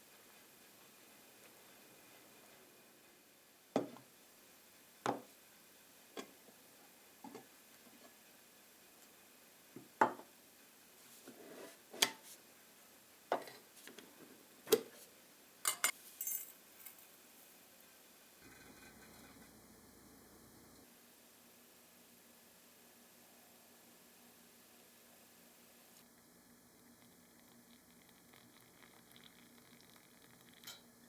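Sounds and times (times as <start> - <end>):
dishes and utensils clinking: 15.7 - 17.0, 30.6 - 30.9.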